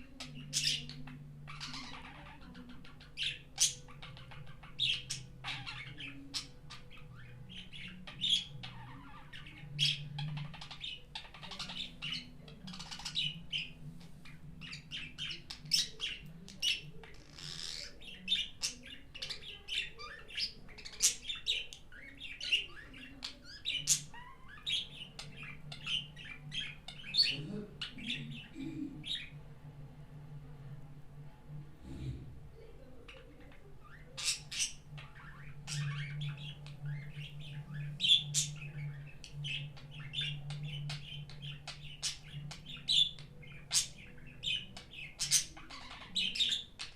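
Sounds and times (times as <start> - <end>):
budgerigar chirping: 0.1 - 13.8, 14.6 - 28.5, 33.2 - 46.9.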